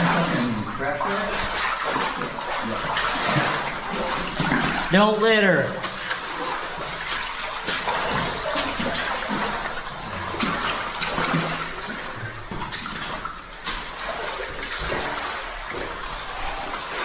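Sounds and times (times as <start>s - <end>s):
water splashes: 0.0s - 17.0s.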